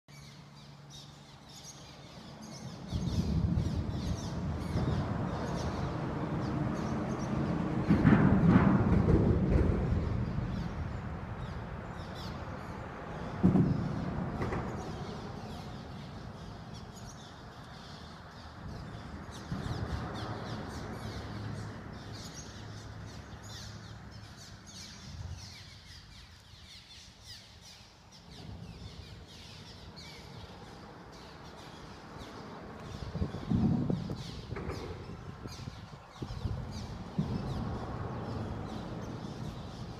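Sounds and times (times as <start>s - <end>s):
birds chirping: 0.1s - 8.7s, 9.4s - 39.9s
low rumble: 2.8s - 17.6s
low thump: 13.4s - 15.2s.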